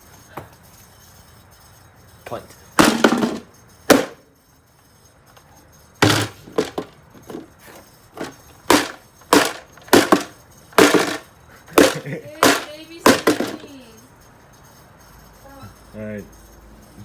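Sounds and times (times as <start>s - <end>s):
hard knocks: 2.8s - 4.2s, 6.0s - 7.5s, 8.2s - 13.7s.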